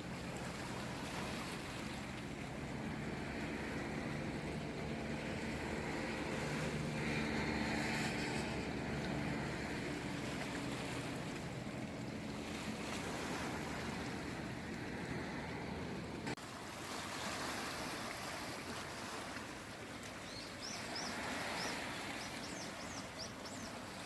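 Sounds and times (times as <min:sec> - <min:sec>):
low motor hum: 0:00.0 - 0:16.4
sea waves washing in: 0:00.0 - 0:24.0.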